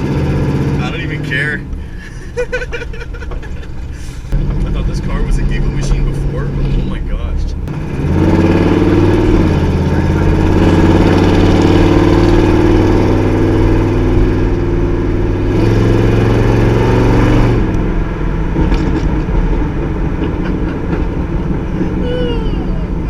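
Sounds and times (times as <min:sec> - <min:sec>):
loud car engine running: 0:00.0 - 0:23.0.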